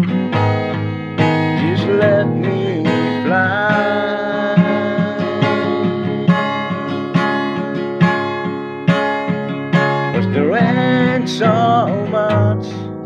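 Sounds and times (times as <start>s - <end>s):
acoustic guitar strumming: 0.0s - 13.0s
person singing: 1.6s - 7.1s, 10.2s - 13.0s.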